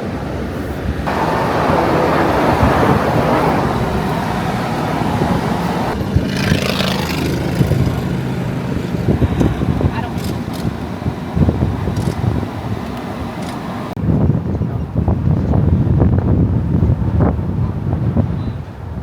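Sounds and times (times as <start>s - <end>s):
road noise rush: 0.0s - 19.0s
car engine hum: 0.5s - 14.0s.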